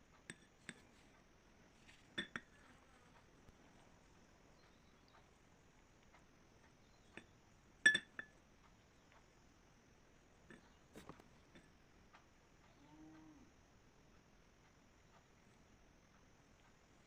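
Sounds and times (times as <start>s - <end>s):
glass clinking: 2.2s - 2.5s, 7.8s - 8.4s.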